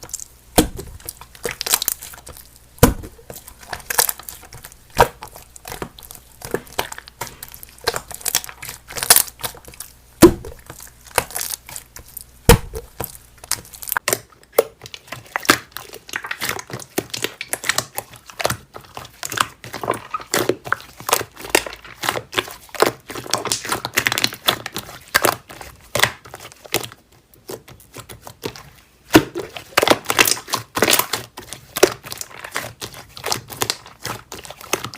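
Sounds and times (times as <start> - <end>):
slime crackling and popping: 0.0 - 34.9
heavy thuds: 0.5 - 1.1, 2.8 - 3.3, 10.2 - 10.7, 12.5 - 13.0.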